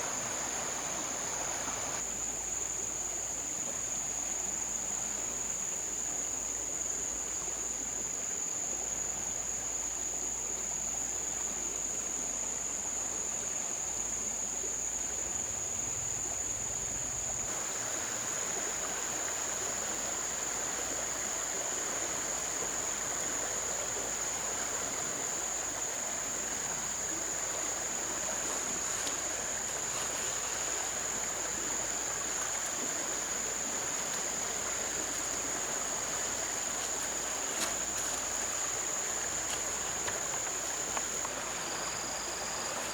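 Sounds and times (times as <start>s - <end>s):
river water rushing: 0.0s - 2.0s, 17.5s - 42.9s.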